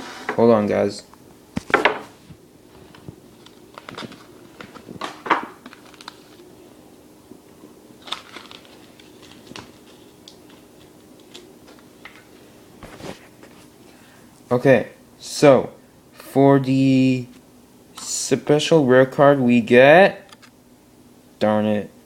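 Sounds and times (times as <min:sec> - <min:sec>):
card packaging crinkling: 0:02.7 - 0:06.5, 0:08.0 - 0:12.4.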